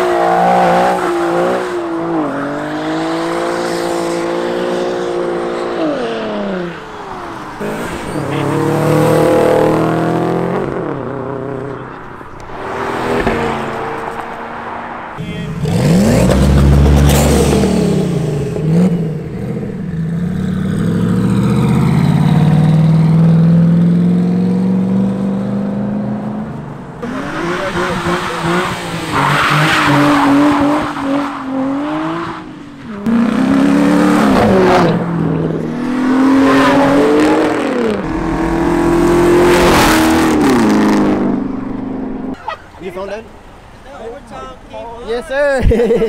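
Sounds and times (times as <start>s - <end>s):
car engine accelerating: 0.0s - 42.4s
car engine revving through gears: 7.5s - 14.7s, 15.5s - 42.3s.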